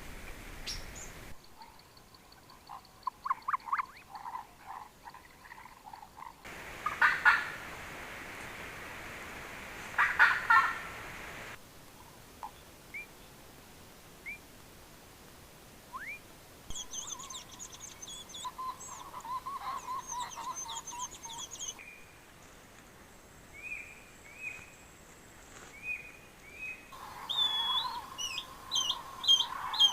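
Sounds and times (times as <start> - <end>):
background hiss: 0.0 - 29.9
rising bird whistles: 16.0 - 21.7, 27.2 - 29.9
high bird chirping: 16.0 - 21.8, 27.1 - 29.9
warbling bird trill: 16.8 - 21.8, 27.1 - 29.9.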